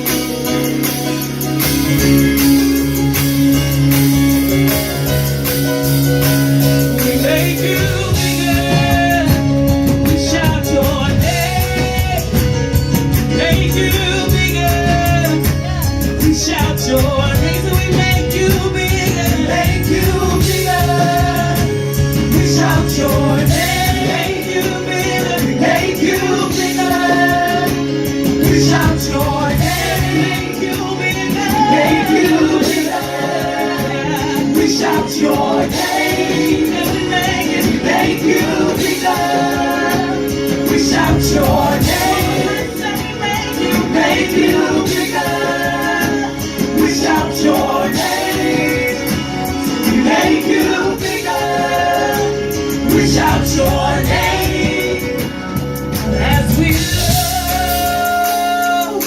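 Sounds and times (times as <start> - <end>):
worship band playing gospel: 0.0 - 59.0
singing: 28.4 - 49.2.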